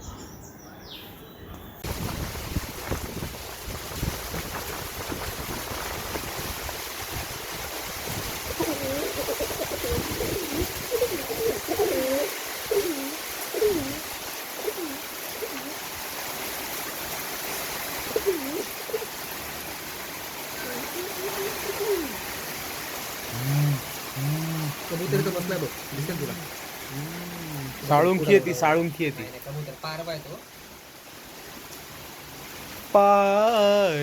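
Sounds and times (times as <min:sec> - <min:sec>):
steady hiss: 0:01.8 - 0:34.0
pigeon cooing: 0:08.5 - 0:15.8, 0:18.0 - 0:19.2, 0:20.6 - 0:22.3, 0:23.3 - 0:25.2, 0:26.0 - 0:28.6.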